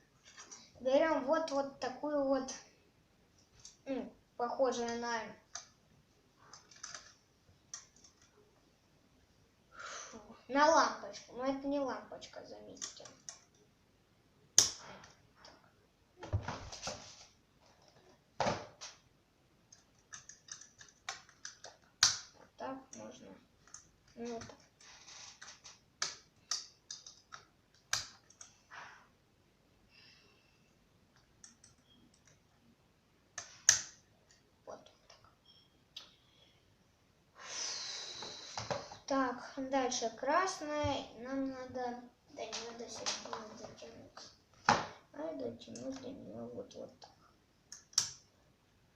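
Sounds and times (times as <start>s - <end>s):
plastic parts clicking and clattering: 6.5s - 8.3s, 19.7s - 22.2s, 23.6s - 28.6s.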